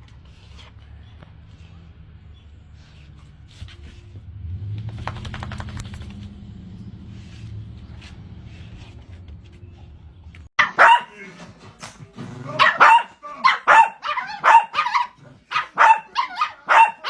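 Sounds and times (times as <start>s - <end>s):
dog barking: 10.6s - 11.3s, 12.5s - 17.0s.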